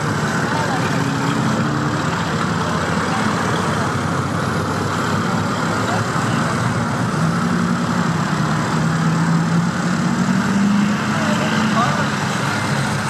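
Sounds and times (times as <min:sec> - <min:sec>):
cars driving slowly past: 0:00.0 - 0:13.0.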